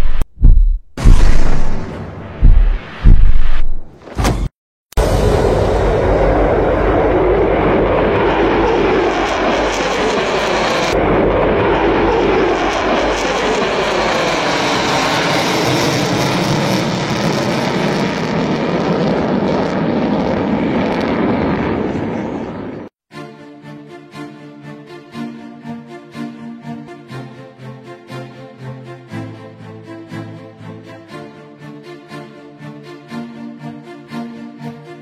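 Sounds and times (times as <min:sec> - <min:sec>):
jet bomber flying past: 0:05.0 - 0:22.9.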